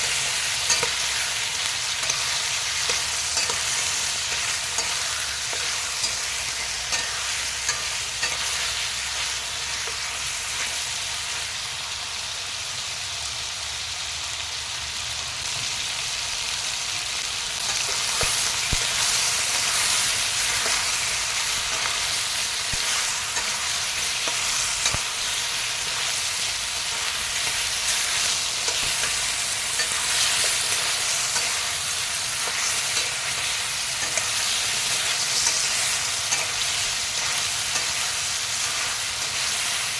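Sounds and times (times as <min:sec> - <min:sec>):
food sizzling in hot oil: 0:00.0 - 0:39.9
utensil clicking against pan: 0:32.4 - 0:39.4.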